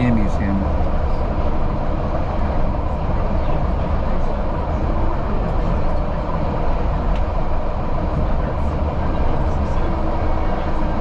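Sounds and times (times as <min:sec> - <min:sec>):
passenger train running on track: 0:00.0 - 0:11.0
faint clicks of wheels: 0:07.0 - 0:07.4.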